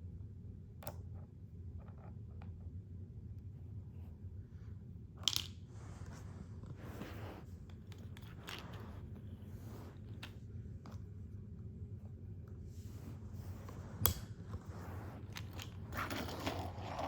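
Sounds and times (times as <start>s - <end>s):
low steady hum: 0.0s - 17.0s
plastic toys clicking and scraping: 15.2s - 17.0s.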